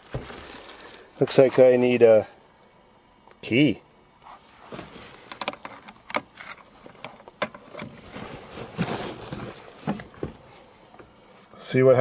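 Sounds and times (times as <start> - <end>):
rustling: 0.0 - 1.6, 4.2 - 10.8.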